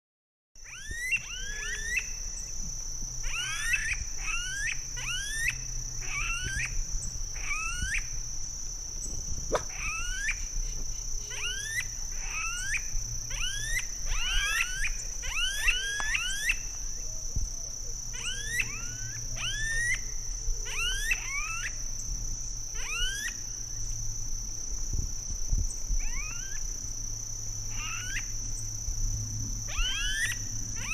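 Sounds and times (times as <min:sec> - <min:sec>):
high-pitched insect drone: 0:00.6 - 0:30.9
birds whistling calls: 0:09.0 - 0:21.8, 0:29.7 - 0:30.9.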